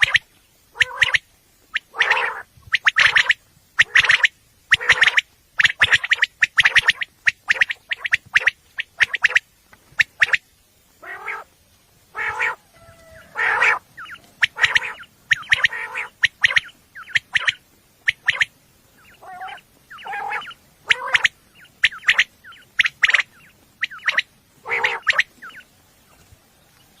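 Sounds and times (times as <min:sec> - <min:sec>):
quail calling: 0:00.0 - 0:26.4.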